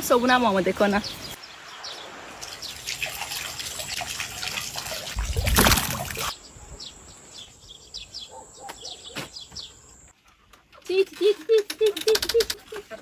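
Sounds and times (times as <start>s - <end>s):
small birds chirping: 0.0s - 12.9s
water trickling: 1.7s - 6.3s.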